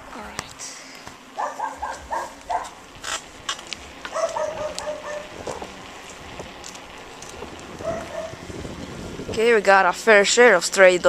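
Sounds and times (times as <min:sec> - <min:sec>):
dog barking: 0:01.4 - 0:02.8, 0:04.1 - 0:05.6, 0:07.8 - 0:08.4.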